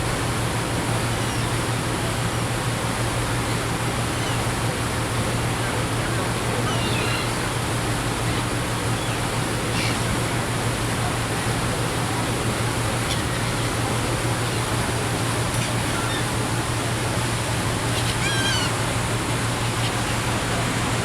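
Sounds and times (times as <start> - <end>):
low engine hum: 0.0 - 21.0
rushing water noise: 0.0 - 21.0
seagull calls: 4.1 - 4.5, 6.6 - 7.7, 8.4 - 10.5, 12.8 - 16.8, 17.4 - 20.8.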